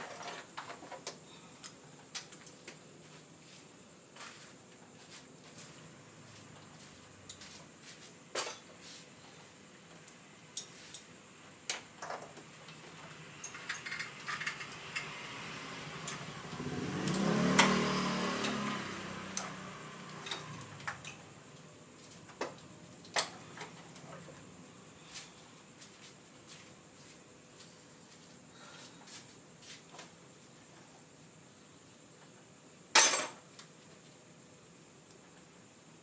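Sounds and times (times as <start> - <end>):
metal tools clinking and knocking: 13.4 - 15.1, 33.0 - 33.4.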